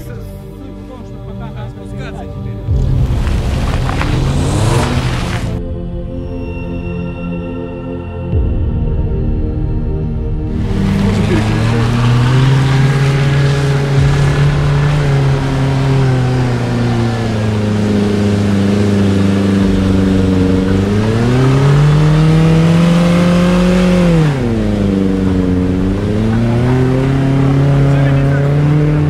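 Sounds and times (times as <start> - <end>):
car engine revving under load: 2.6 - 5.6, 10.5 - 29.0.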